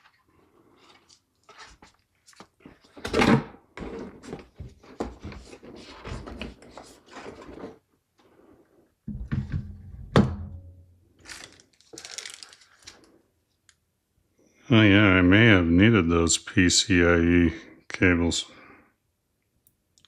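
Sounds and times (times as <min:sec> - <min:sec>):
handling rustling and clicks: 0:11.2 - 0:13.8.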